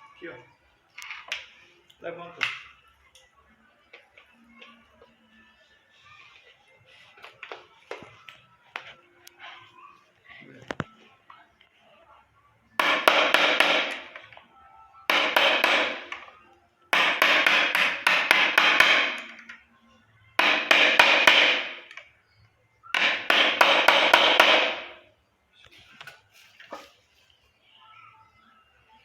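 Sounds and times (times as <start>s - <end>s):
hammer tapping metal: 12.8s - 14.3s, 15.1s - 16.3s, 17.0s - 19.4s, 20.4s - 22.0s, 23.0s - 24.9s.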